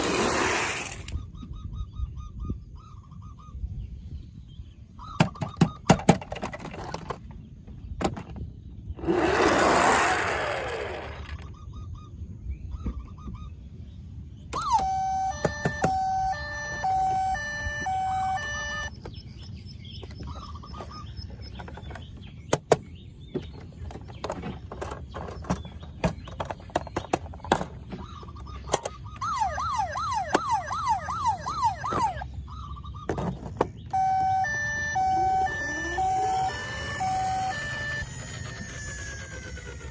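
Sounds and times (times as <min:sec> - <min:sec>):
toy siren whooping: 0:14.5 - 0:18.9, 0:28.7 - 0:32.7, 0:33.9 - 0:39.9
electronic beeping tune: 0:14.6 - 0:19.0, 0:33.9 - 0:39.9.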